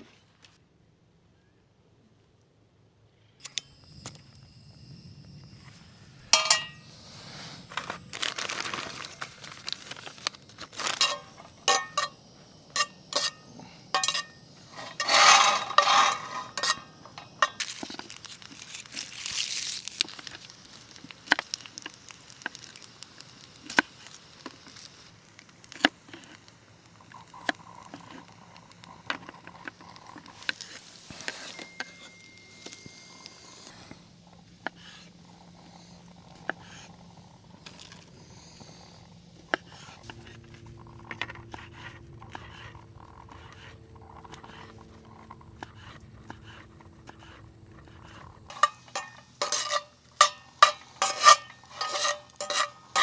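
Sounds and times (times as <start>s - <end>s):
cookware clattering: 6.4s - 6.8s, 11.0s - 12.2s, 14.0s - 17.6s, 48.5s - 53.0s
cookware clinking and knocking: 6.4s - 6.8s, 11.0s - 12.2s, 14.0s - 17.6s.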